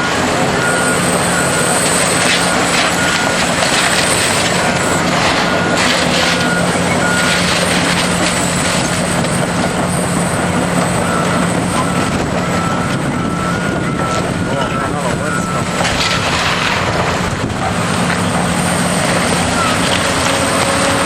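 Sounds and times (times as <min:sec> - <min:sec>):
backup alarm beeping: 0:00.0 - 0:16.5
heavy machine engine running: 0:00.0 - 0:21.0.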